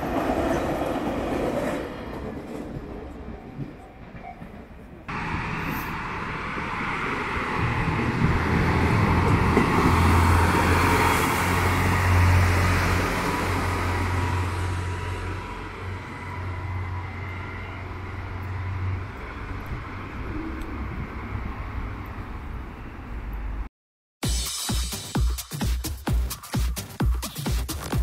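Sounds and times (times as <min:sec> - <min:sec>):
train wheels hissing on rails: 0:05.1 - 0:11.4
deep train drive drone: 0:05.1 - 0:23.7.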